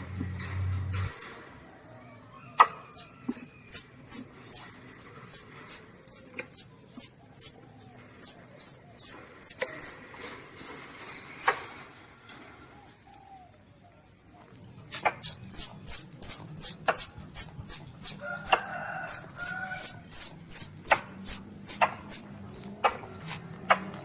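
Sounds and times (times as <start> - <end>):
civet squeaking: 2.6 - 11.7, 14.9 - 24.0.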